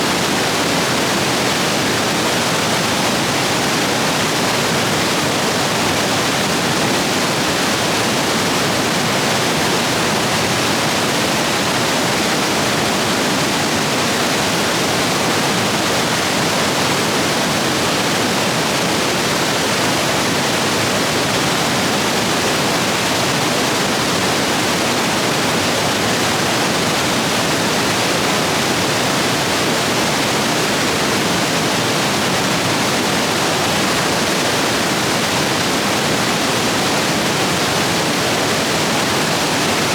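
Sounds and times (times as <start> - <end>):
stream rapids roaring: 0.0 - 39.9.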